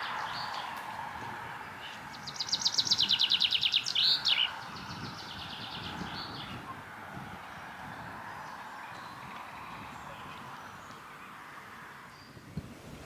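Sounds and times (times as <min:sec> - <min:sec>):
songbird trilling: 0:01.7 - 0:06.8.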